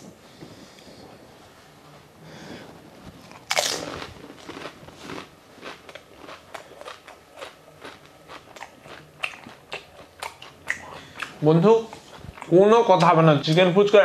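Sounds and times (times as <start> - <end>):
crunchy chewing: 3.2 - 12.6
crisp shell crunching when bitten: 3.3 - 10.9.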